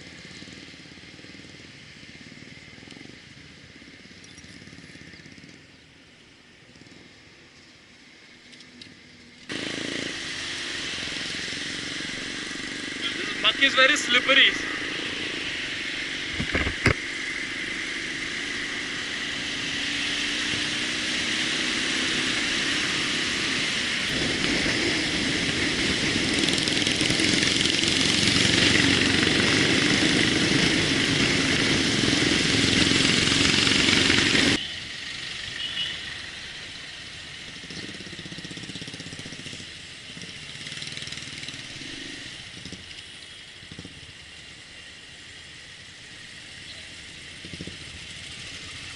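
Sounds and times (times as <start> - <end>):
motorcycle engine hum: 0.0 - 48.9
rushing wind noise: 14.6 - 34.6.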